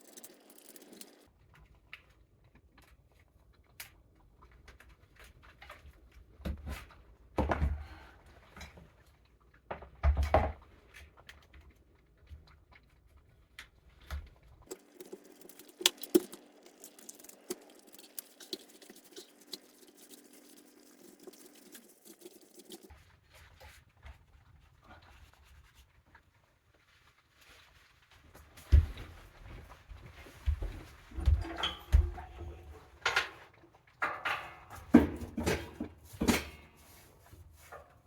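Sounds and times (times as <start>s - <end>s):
small clicks and scrapes: 0.0s - 6.3s, 10.8s - 28.6s.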